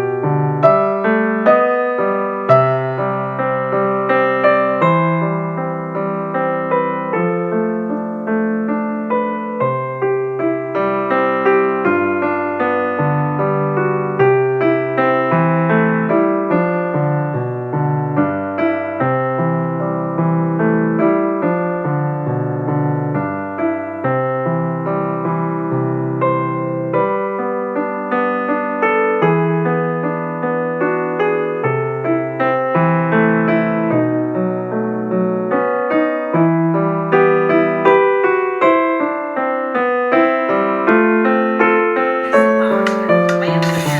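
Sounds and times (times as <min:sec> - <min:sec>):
piano music: 0:00.0 - 0:07.9, 0:42.2 - 0:43.9.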